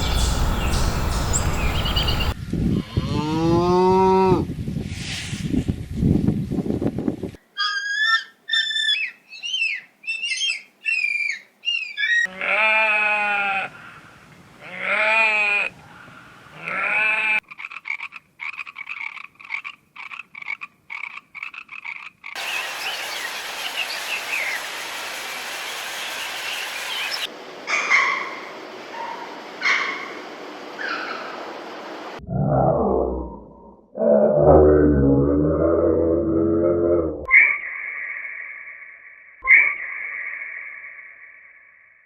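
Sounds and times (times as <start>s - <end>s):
long wavering animal calls: 32.2s - 38.8s.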